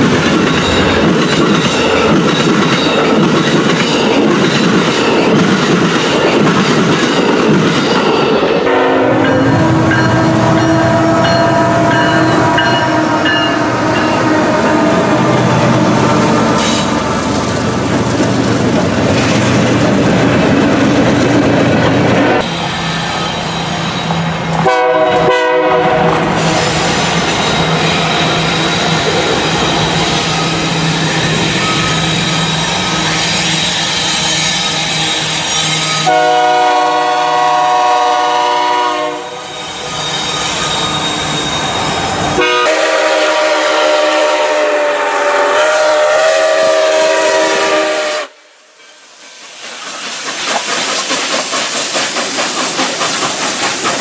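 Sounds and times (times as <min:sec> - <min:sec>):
trains running by: 0:00.0 - 0:54.0
train horns sounding: 0:08.6 - 0:17.1, 0:22.4 - 0:26.6, 0:30.3 - 0:40.0, 0:40.8 - 0:48.6.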